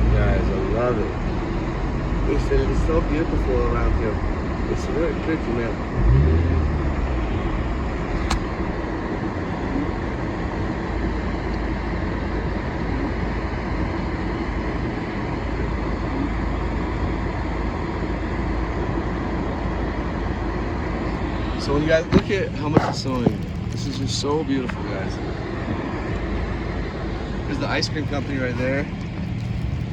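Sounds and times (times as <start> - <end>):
vehicle engine and tyre rumble: 0.0 - 29.9
sharp click: 8.2 - 8.5.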